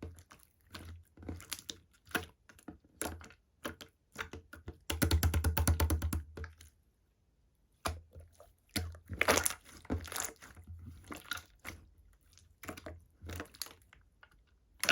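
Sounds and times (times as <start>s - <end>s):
hands squishing slime: 7.8s - 14.9s.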